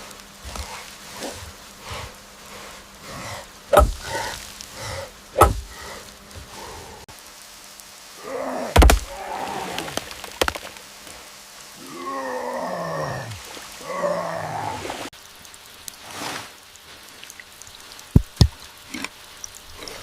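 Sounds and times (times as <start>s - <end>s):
heavy thumps: 3.7s - 4.4s, 5.4s - 6.5s, 8.8s - 9.1s.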